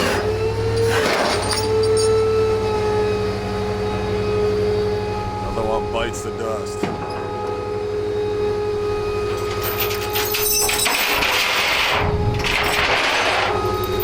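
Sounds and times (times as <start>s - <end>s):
motorcycle scraping along metal: 0.0s - 2.2s
tow truck engine whine: 0.0s - 14.0s.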